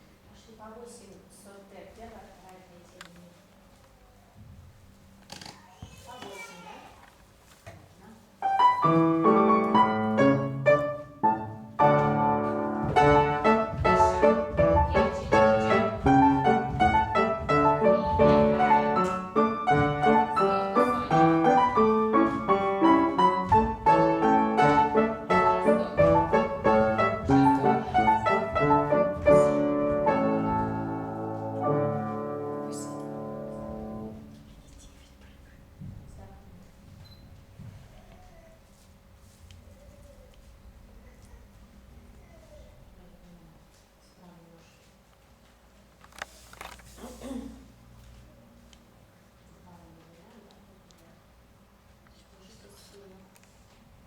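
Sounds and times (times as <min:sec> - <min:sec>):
brisk piano accompaniment: 0:08.4 - 0:34.5.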